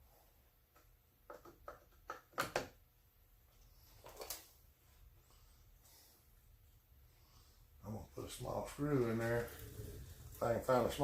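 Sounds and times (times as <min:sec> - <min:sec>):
soft rustle: 0:03.4 - 0:11.0.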